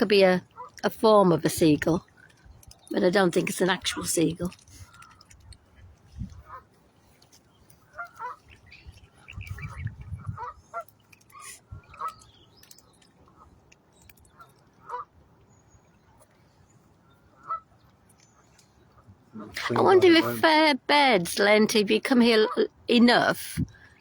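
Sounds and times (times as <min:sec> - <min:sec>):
geese honking: 0:19.4 - 0:20.7.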